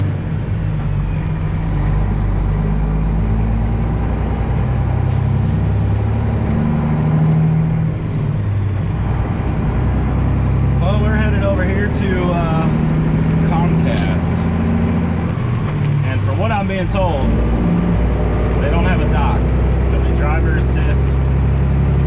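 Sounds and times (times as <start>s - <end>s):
truck diesel engine droning: 0.0s - 22.0s.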